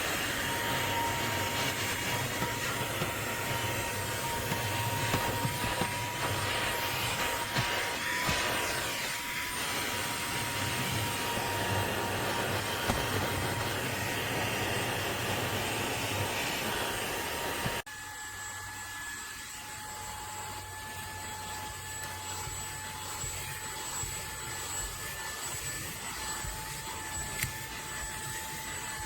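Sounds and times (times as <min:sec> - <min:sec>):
handheld vacuum motor whine: 0:00.0 - 0:29.0.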